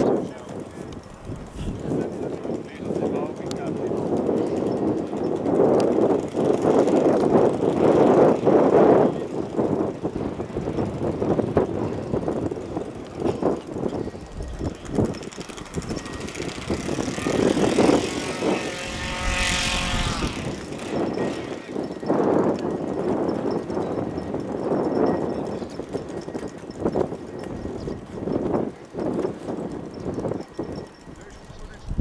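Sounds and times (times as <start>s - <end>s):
model aircraft engine running: 0.0s - 32.0s
wind on microphone: 0.0s - 32.0s
microphone handling noise: 0.7s - 2.2s.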